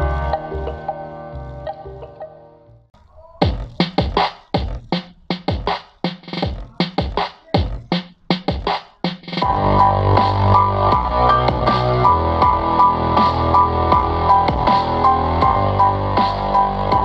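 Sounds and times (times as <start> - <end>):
bass-heavy electronic music: 0.0 - 2.8, 9.4 - 17.0
punchy bass hits: 9.4 - 17.0.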